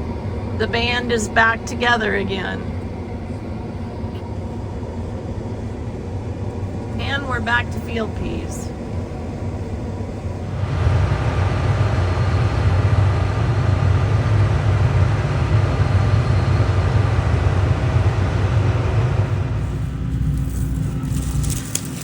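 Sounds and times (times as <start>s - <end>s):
vehicle engine running: 6.5s - 22.0s.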